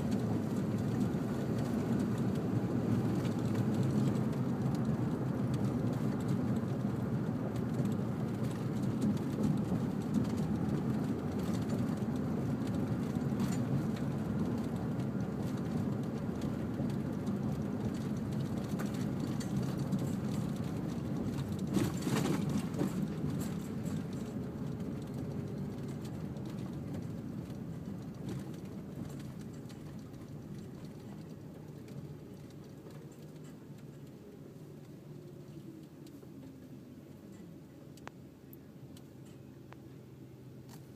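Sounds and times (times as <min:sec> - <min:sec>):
low engine rumble: 0:00.0 - 0:40.9.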